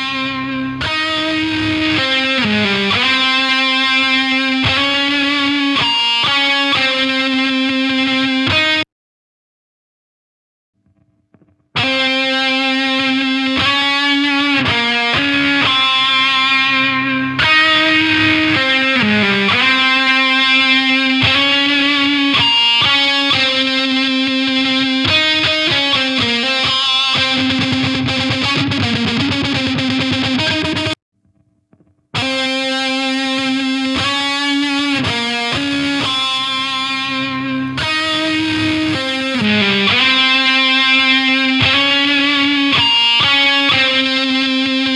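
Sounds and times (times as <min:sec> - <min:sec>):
distorted electric guitar riff: 0:00.0 - 0:08.8, 0:10.9 - 0:44.9.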